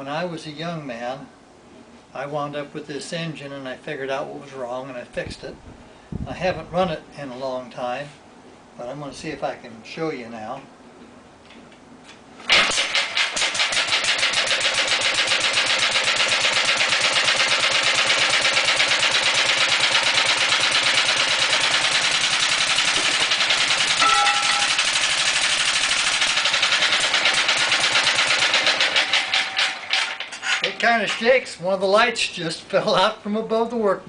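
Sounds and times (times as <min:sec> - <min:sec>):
single-cylinder gas engine running: 0:12.5 - 0:24.0, 0:24.7 - 0:30.2.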